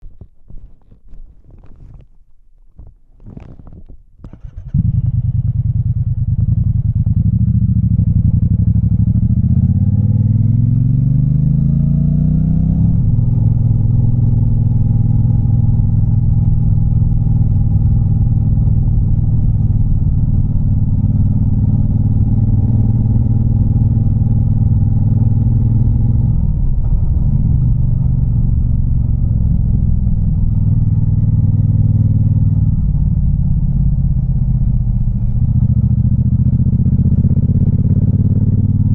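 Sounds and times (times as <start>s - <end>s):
motorcycle engine accelerating: 4.2s - 38.9s.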